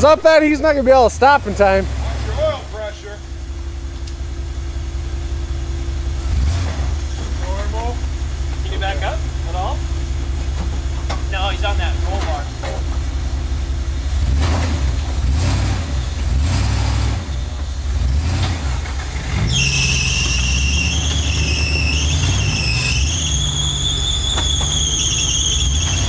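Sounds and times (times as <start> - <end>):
engine rumbling under load: 0.0 - 26.0
high-pitched wavering squeal: 19.3 - 26.0.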